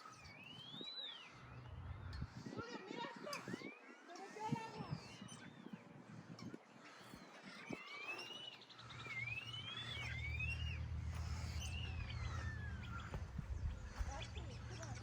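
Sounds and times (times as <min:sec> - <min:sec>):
bird trill: 0:00.0 - 0:15.0
songbirds whistling calls: 0:00.0 - 0:15.0
steady low rumble: 0:09.6 - 0:15.0.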